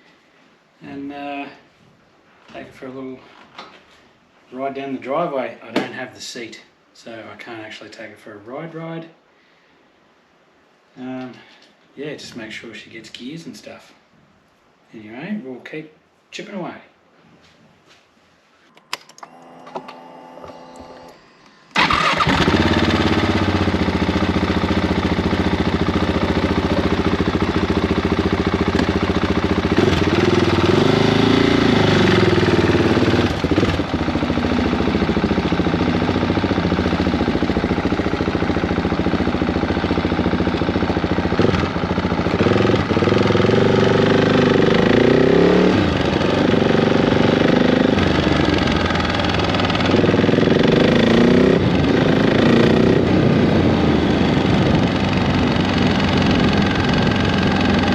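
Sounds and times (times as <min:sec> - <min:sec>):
motorcycle engine revving: 0:19.3 - 0:57.9.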